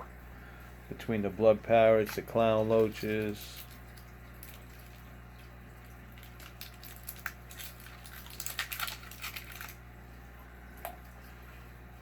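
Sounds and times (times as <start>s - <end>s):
aquarium equipment humming: 0.0s - 12.0s
small sharp clicks and crackles: 6.2s - 9.8s.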